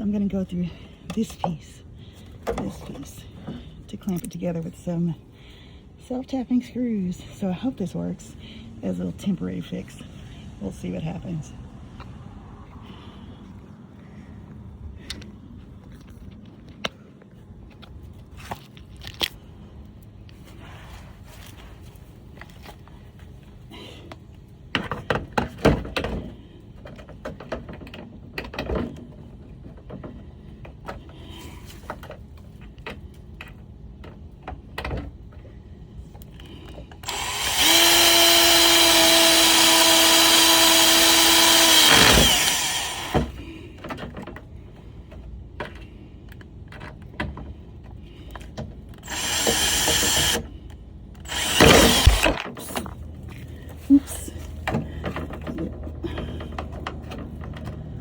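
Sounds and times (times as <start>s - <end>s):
power drill driving screws into metal: 37.0s - 43.3s, 49.0s - 50.4s, 51.2s - 52.6s
knocks and handling clatter: 51.9s - 58.0s.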